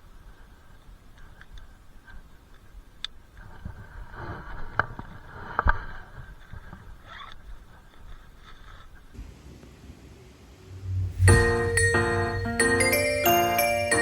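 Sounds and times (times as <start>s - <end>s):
low rumble: 10.0s - 12.6s.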